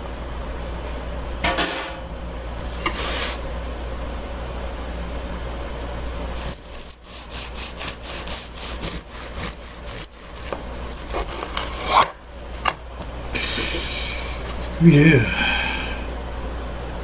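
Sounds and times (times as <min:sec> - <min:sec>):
knife sawing through bread: 0:06.9 - 0:10.4.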